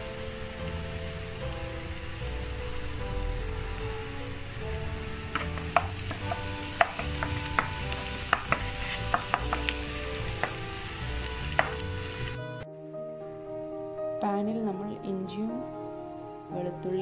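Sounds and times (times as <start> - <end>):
food sizzling in hot oil: 0.0 - 12.4
spatula scraping a pan: 5.4 - 10.6.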